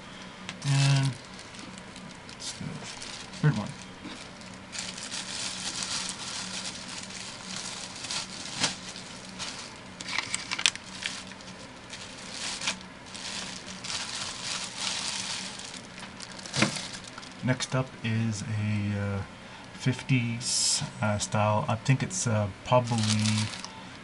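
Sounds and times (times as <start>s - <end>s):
plastic wrapping crinkling: 0.5s - 17.8s, 22.8s - 23.8s.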